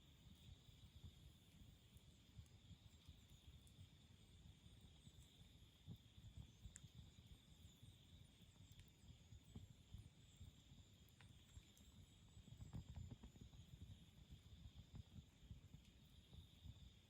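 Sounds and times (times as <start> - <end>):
campfire fluttering rumble: 0.0 - 17.0
burning wood crackling and popping: 10.9 - 16.3.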